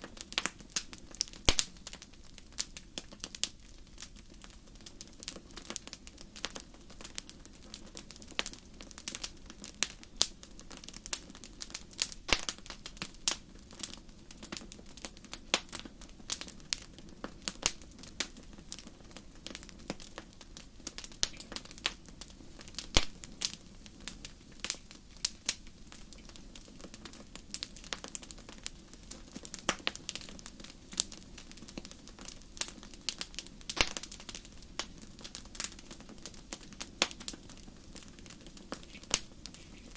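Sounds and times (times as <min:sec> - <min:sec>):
fire popping and snapping: 0:00.0 - 0:39.9
wood fire crackling: 0:00.0 - 0:39.9.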